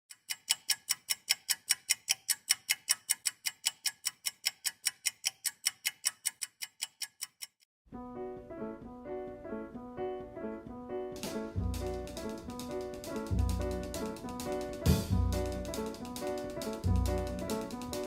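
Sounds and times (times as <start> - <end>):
rapid mechanical ticking: 0.1 - 7.7, 11.8 - 18.0
piano music: 7.9 - 18.0.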